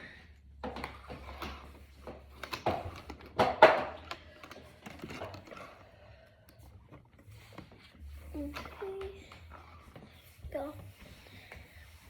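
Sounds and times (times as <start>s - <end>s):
plastic discs clicking and clattering: 0.6s - 5.8s.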